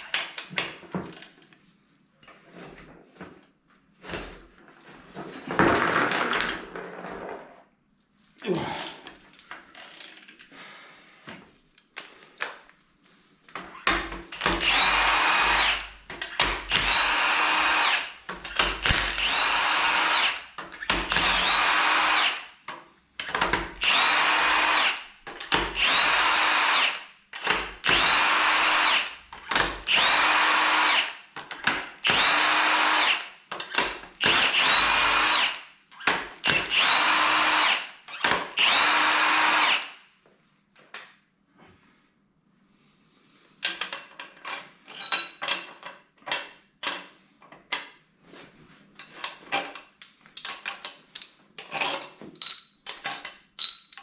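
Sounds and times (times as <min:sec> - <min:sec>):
power tool motor whining: 0:14.6 - 0:15.9, 0:16.7 - 0:18.1, 0:18.8 - 0:20.4, 0:21.1 - 0:22.4, 0:23.8 - 0:25.0, 0:25.8 - 0:27.0, 0:27.8 - 0:29.2, 0:29.9 - 0:31.1, 0:32.0 - 0:33.3, 0:34.2 - 0:35.6, 0:36.5 - 0:37.8, 0:38.6 - 0:39.9.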